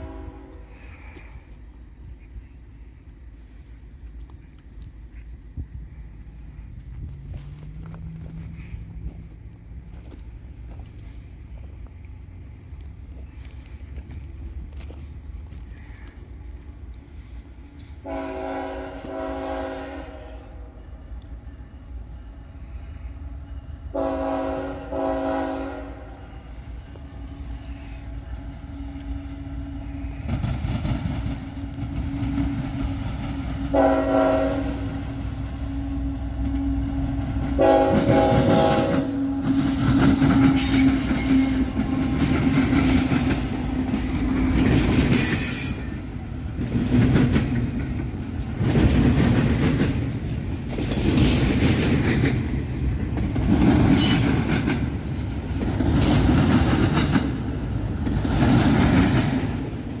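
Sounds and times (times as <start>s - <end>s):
train air horn blasts: 0.0s - 1.4s, 17.8s - 21.0s, 22.6s - 30.3s, 31.7s - 43.4s
diesel locomotive drone: 0.0s - 60.0s
train wheels clattering: 28.7s - 60.0s.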